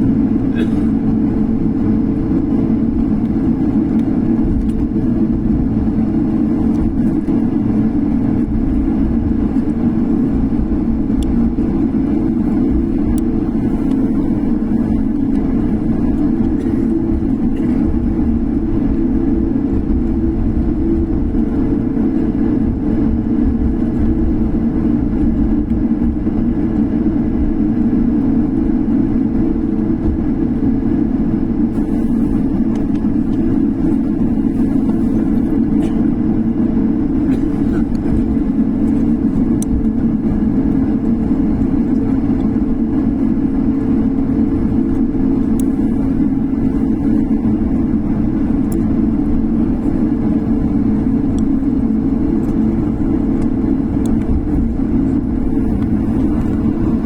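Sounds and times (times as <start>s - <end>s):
constant hum: 0.0s - 57.0s
jet engines droning in cabin: 0.0s - 57.0s.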